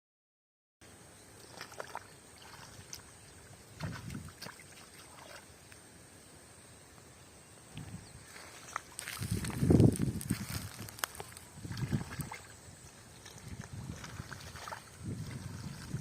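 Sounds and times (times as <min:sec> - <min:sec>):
water sloshing and splashing: 0:01.4 - 0:05.6, 0:08.3 - 0:16.0.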